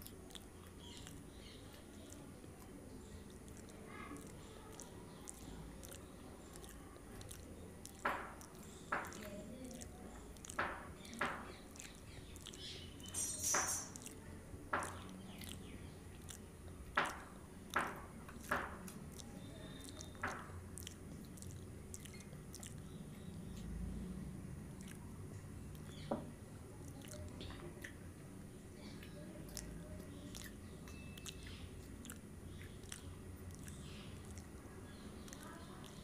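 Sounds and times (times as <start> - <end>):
wet mouth clicks: 0.0 - 14.2, 14.8 - 23.8, 24.8 - 26.1, 26.8 - 28.0, 28.9 - 36.0
crackly crunch: 0.0 - 23.7, 31.2 - 36.0
chewing soft food: 0.0 - 36.0.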